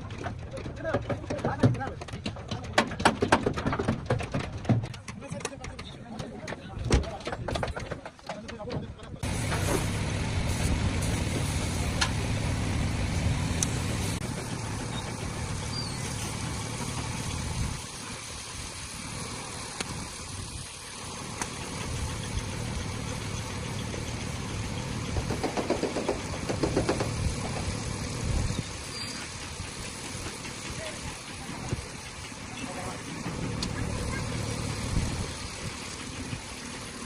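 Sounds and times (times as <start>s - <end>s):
rapid rattling: 0.0s - 9.7s
car engine idling: 9.2s - 37.0s.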